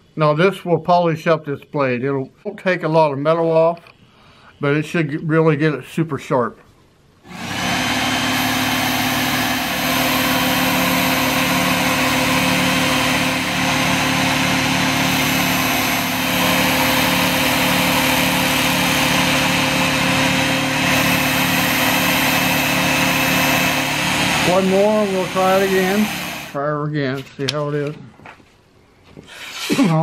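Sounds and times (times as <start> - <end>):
belt sharpener motor running: 7.3 - 26.6.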